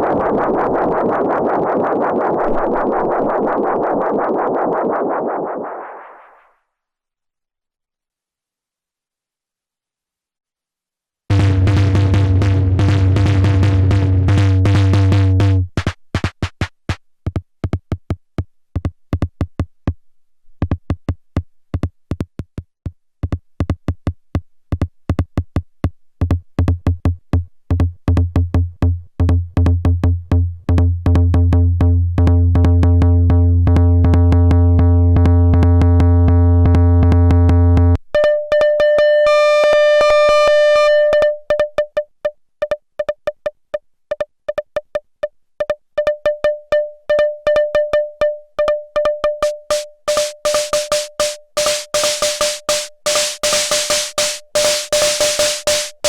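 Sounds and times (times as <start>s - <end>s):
deep bass tone: 11.3s - 15.8s, 28.1s - 38.0s
electronic drum pattern: 11.3s - 17.8s, 48.9s - 56.0s
high ringing pitched hits: 49.4s - 56.0s.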